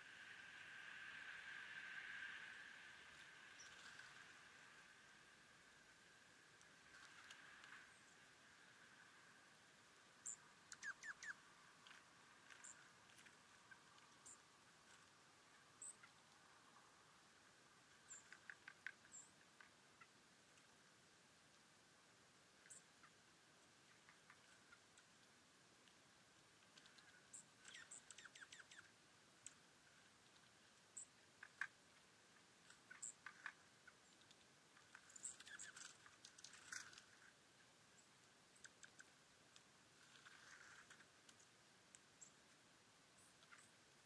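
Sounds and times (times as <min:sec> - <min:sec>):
faint steady hiss: 0:00.0 - 0:44.0
small birds chirping: 0:02.7 - 0:04.9, 0:10.1 - 0:16.9, 0:17.8 - 0:20.8, 0:22.6 - 0:25.2, 0:26.6 - 0:44.0
soft ticks: 0:17.9 - 0:20.7, 0:30.2 - 0:37.3, 0:38.2 - 0:42.6.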